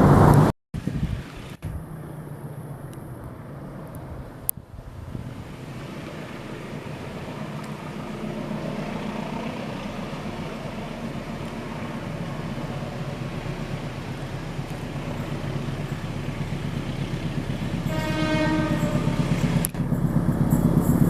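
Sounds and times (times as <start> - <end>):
diesel locomotive engine humming: 0.0 - 21.0.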